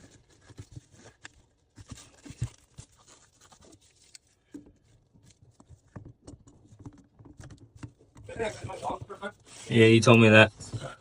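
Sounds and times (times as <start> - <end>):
plastic pipe parts clicking and scraping: 0.0 - 11.0.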